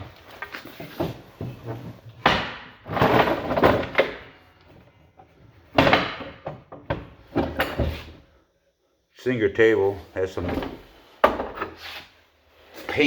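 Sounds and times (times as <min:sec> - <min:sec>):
wooden furniture knocking and scraping: 0:00.0 - 0:08.2, 0:10.4 - 0:11.8.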